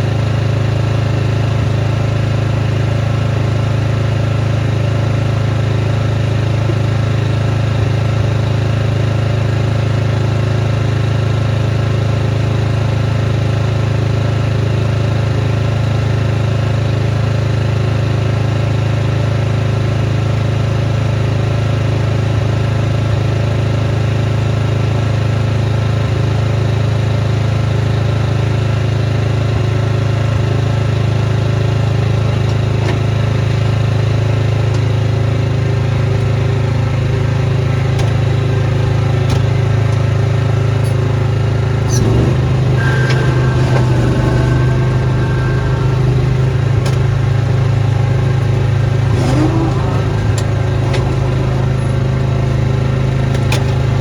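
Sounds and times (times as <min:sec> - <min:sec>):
small engine running: 0:33.5 - 0:54.0.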